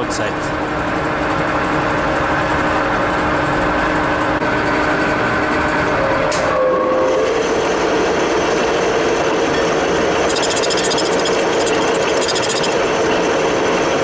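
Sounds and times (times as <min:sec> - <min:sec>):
metal lathe humming: 0:03.0 - 0:14.0.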